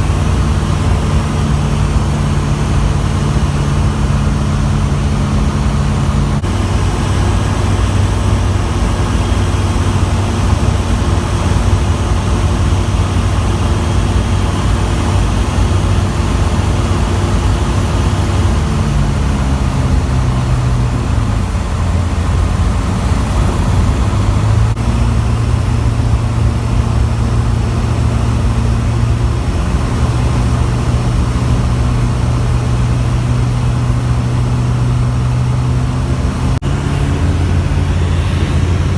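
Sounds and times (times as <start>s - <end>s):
light aircraft engine droning: 0.0s - 38.9s.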